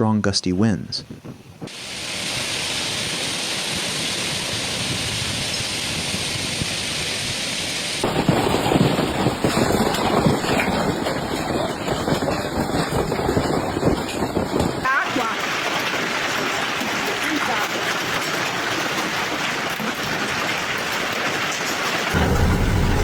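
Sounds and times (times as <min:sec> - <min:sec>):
low storm rumble: 0:01.1 - 0:15.8, 0:22.1 - 0:23.0
heavy rain hissing: 0:01.7 - 0:12.3, 0:12.9 - 0:23.0.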